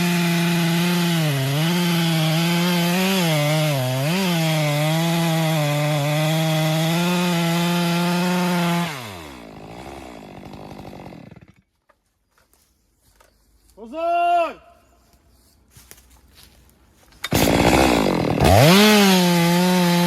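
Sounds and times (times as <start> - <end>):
chainsaw cutting at full throttle: 0.0 - 11.6, 17.3 - 20.0.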